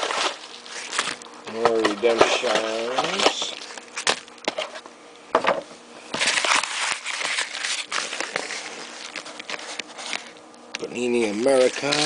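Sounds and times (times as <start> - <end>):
paper envelope tearing and rustling: 0.0 - 1.2, 6.1 - 10.4, 11.2 - 12.0.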